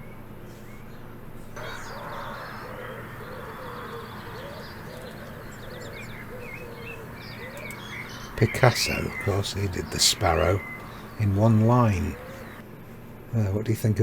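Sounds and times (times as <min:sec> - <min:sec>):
small songbirds chirping: 0:01.6 - 0:12.6
wood pigeon cooing: 0:01.6 - 0:12.6.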